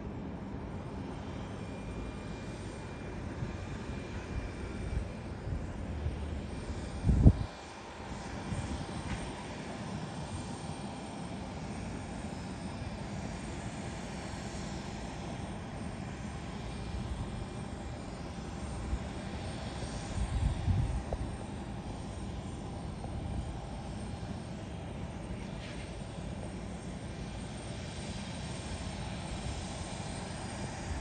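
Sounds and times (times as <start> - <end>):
distant airliner engines rumbling: 0.0 - 31.0.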